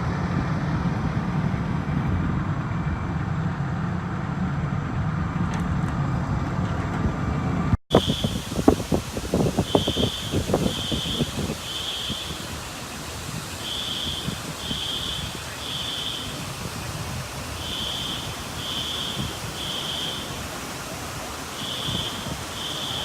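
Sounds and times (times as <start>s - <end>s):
steady background hiss: 7.9s - 23.0s
fire alarm beeping: 9.6s - 12.4s, 13.7s - 16.3s, 17.6s - 20.3s, 21.6s - 23.0s.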